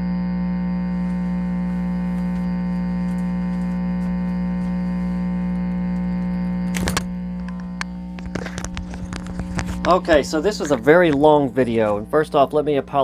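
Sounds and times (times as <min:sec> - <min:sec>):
guitar amplifier hum: 0:00.0 - 0:13.0
crackling clicks from guitar handling: 0:05.9 - 0:12.0.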